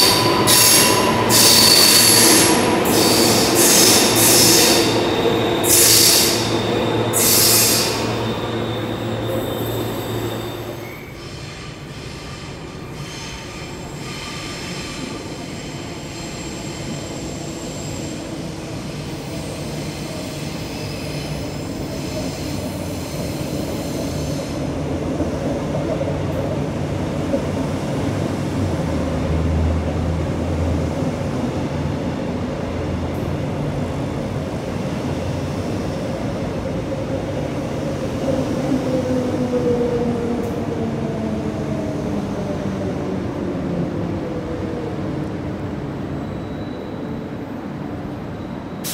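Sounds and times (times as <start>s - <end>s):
train wheels squealing: 0.0s - 24.6s, 45.9s - 48.9s.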